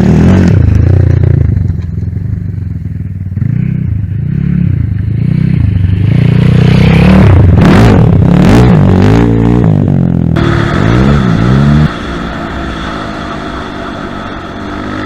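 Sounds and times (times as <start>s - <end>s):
dirt bike engine revving: 3.4s - 15.0s.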